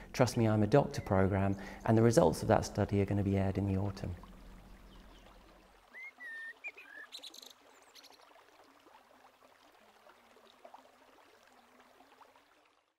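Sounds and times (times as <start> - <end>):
faint outdoor ambience: 0.0 - 12.6
faint birdsong: 4.2 - 8.3.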